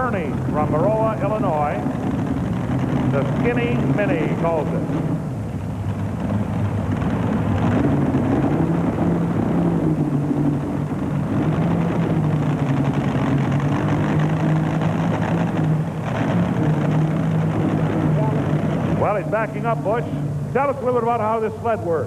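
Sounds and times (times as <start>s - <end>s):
tractor engine droning: 0.0s - 22.0s.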